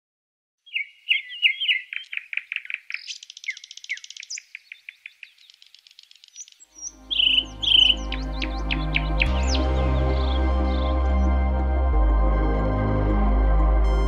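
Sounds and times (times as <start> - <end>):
songbird singing: 0.6 - 11.3.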